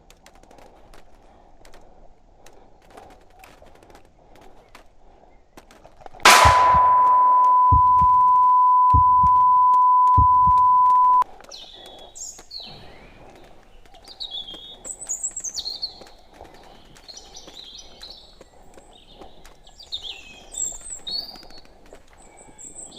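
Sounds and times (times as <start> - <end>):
small birds chirping: 0.6 - 6.2, 11.3 - 22.9
censor beep: 6.3 - 11.2
dull thumps: 6.3 - 11.2.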